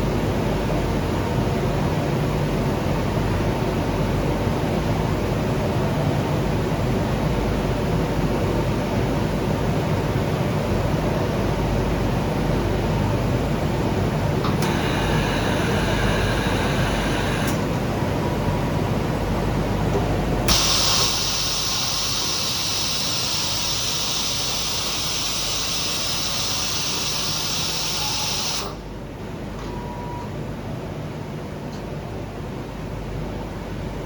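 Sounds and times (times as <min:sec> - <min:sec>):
faint machine whine: 0:12.9 - 0:30.7
machine humming: 0:14.2 - 0:29.5
cleaning jet hissing: 0:20.5 - 0:28.8.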